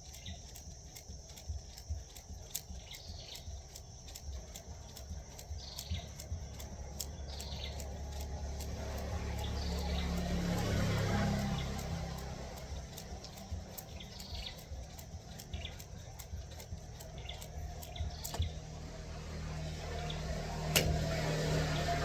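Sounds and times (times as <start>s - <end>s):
faint bird chirps: 0.0s - 8.2s
skipping rope clicking on ground: 0.0s - 18.6s
low steady hum: 0.0s - 22.0s.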